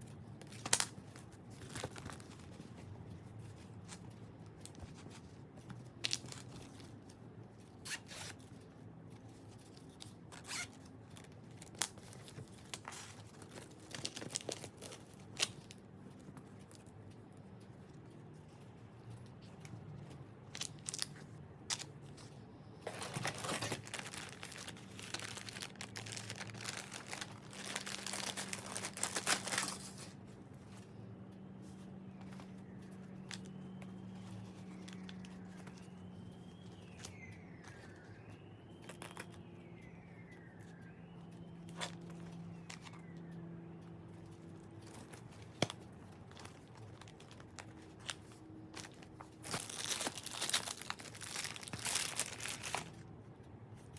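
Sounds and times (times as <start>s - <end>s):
packaging crinkling and tearing: 10.0s - 15.8s, 22.9s - 30.2s, 44.8s - 53.0s.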